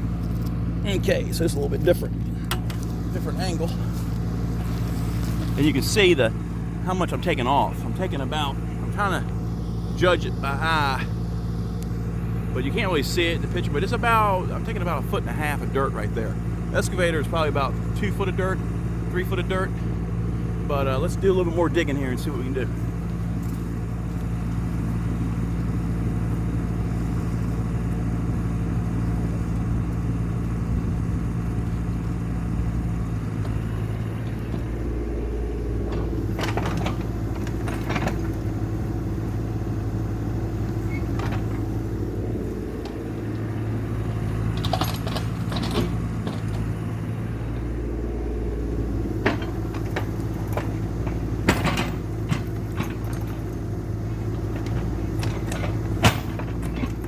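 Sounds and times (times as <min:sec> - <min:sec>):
excavator diesel engine running: 0:00.0 - 0:57.0
sharp clanks and knocks: 0:02.2 - 0:03.0, 0:35.7 - 0:38.8, 0:40.6 - 0:41.8, 0:44.5 - 0:46.8, 0:49.0 - 0:53.6, 0:54.2 - 0:57.0.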